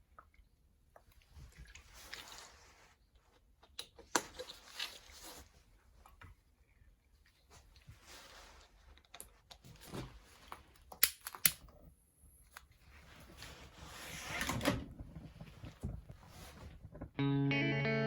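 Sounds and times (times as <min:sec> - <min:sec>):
rubbing or scraping noise: 0:13.0 - 0:17.1.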